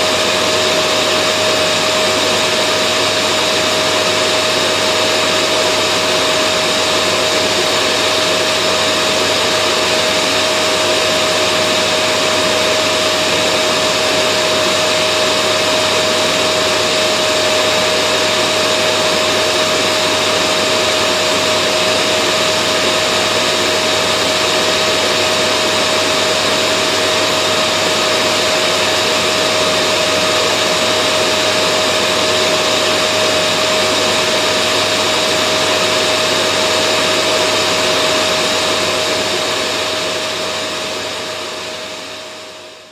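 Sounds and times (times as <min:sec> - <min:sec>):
vacuum cleaner motor running: 0:00.0 - 0:42.9.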